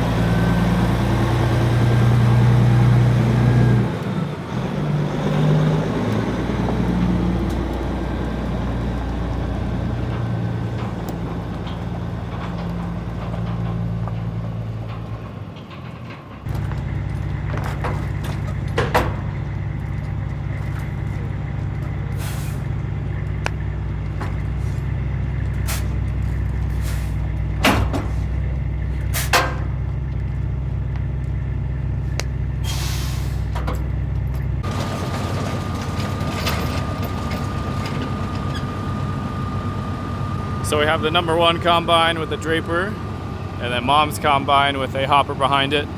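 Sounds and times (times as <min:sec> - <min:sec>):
heavy diesel engine running: 0:00.0 - 0:45.9
air hissing: 0:22.1 - 0:22.7, 0:25.6 - 0:26.0, 0:32.6 - 0:33.6.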